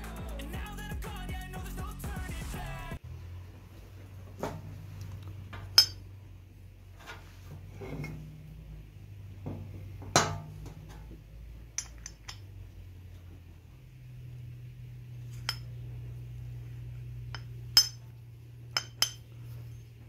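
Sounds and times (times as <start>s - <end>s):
steady low hum: 0.0s - 20.0s
metal tools clinking: 5.6s - 6.1s, 11.7s - 12.5s, 17.3s - 18.1s, 18.8s - 19.5s.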